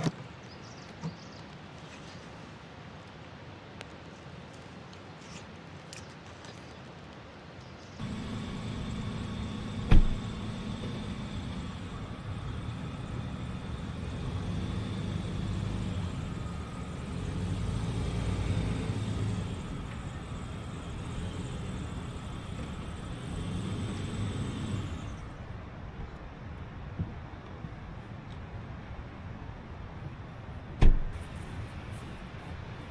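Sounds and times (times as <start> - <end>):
engine running low rumble: 8.0 - 32.9.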